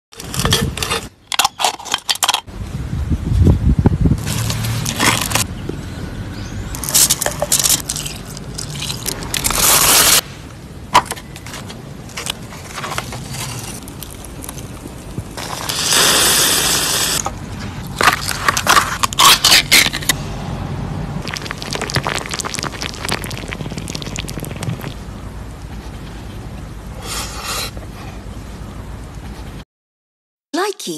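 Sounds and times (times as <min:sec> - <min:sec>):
campfire scraping and crackling: 0:04.2 - 0:05.5, 0:06.7 - 0:10.2, 0:11.4 - 0:20.2, 0:21.2 - 0:25.0.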